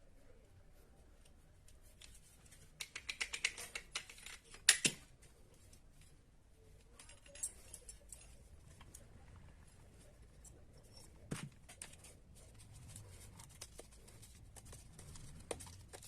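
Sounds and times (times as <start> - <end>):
small parts clicking and clattering: 2.0 - 6.1, 6.8 - 9.0.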